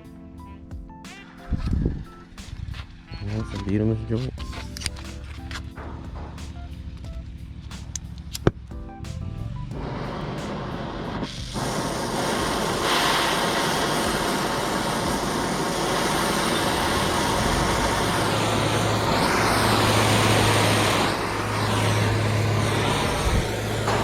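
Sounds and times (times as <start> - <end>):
steady low hum: 4.3 - 24.0
torch flame hissing: 9.8 - 24.0.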